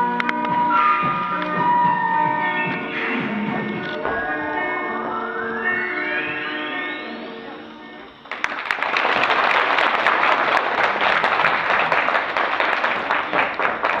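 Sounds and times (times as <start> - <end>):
dance music: 0.0 - 14.0
audience applause: 8.2 - 14.0.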